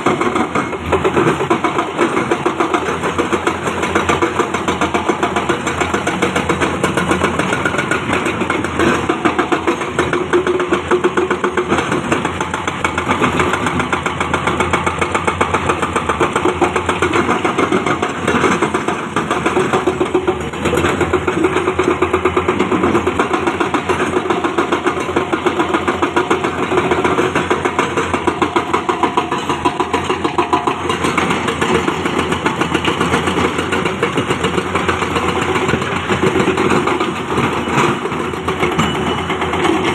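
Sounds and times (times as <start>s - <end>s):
heavy machinery diesel engine: 0.0s - 39.9s.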